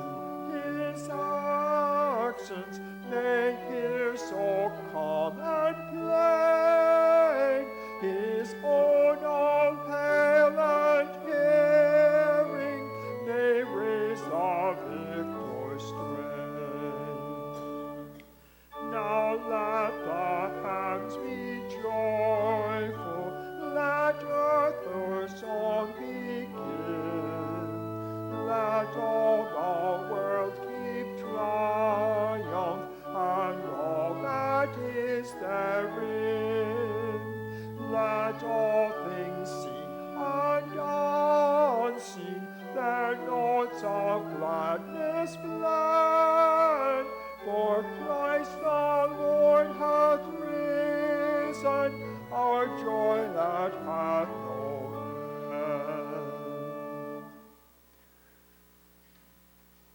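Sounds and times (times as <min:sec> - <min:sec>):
congregation singing a hymn: 0:00.0 - 0:18.1, 0:18.7 - 0:57.4
keyboard accompaniment: 0:00.0 - 0:58.3.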